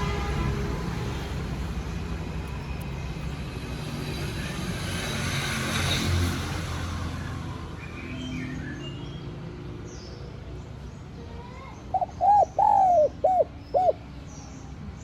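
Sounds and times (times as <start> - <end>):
small birds chirping: 7.2 - 15.0
dove cooing: 11.9 - 14.1.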